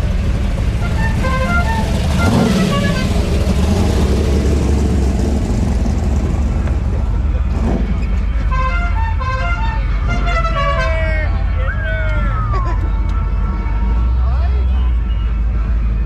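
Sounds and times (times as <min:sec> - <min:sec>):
vehicle engine rumbling: 0:00.0 - 0:16.0
faint music: 0:06.8 - 0:16.0.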